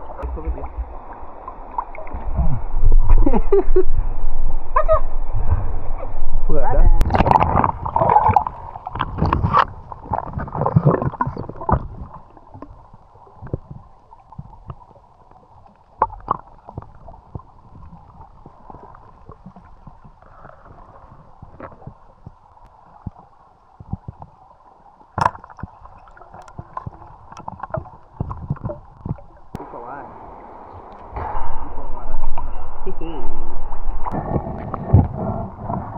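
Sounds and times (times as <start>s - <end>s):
underwater gurgling and sloshing: 0.0s - 35.9s
underwater clicks and knocks: 7.0s - 15.0s, 15.6s - 20.5s, 21.2s - 24.4s, 25.1s - 29.6s.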